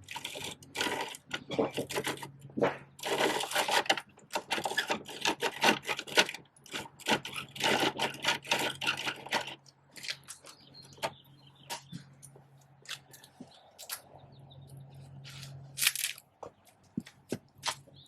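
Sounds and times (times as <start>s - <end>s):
plastic toy truck clicking and rattling: 0.0s - 11.2s.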